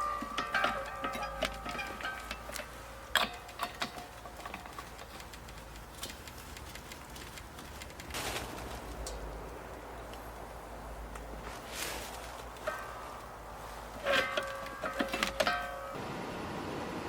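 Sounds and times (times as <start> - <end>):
sharp knocks and clicks: 0.1 - 8.2.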